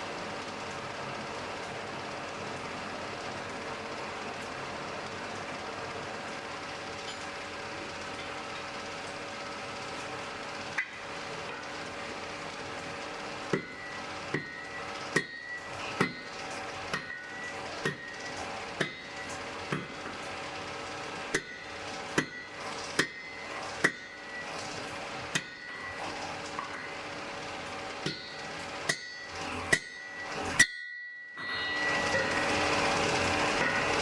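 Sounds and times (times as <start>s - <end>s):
hammer striking an anvil: 10.8s - 11.7s, 13.5s - 20.4s, 21.3s - 27.1s, 28.0s - 32.4s, 33.6s - 34.0s.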